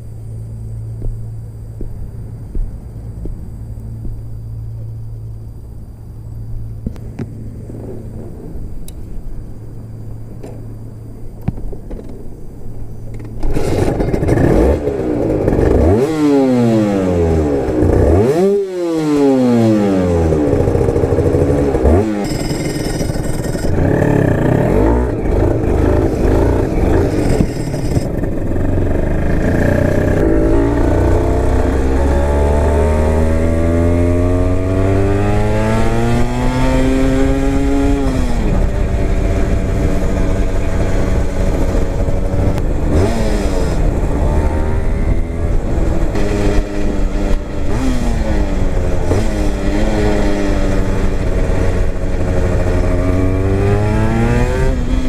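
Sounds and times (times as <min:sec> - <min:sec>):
two-stroke motorcycle engine revving: 0:13.1 - 0:55.0.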